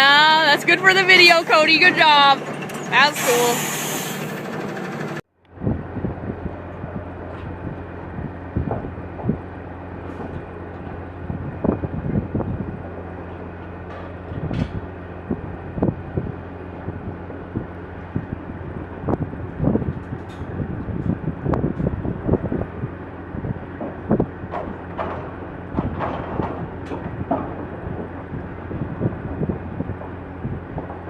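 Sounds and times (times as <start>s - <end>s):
truck engine humming: 0.0s - 31.0s
knocks and clunks: 23.8s - 31.0s.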